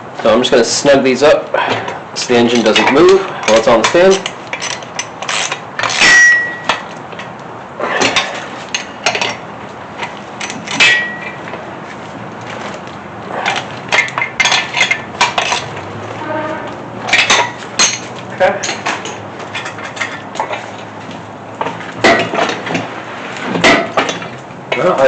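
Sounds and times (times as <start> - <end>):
steel tools clanking: 2.4 - 9.4, 10.0 - 11.5, 13.3 - 22.9, 23.5 - 25.0
sharp metallic knocks: 5.8 - 7.3, 10.4 - 11.4.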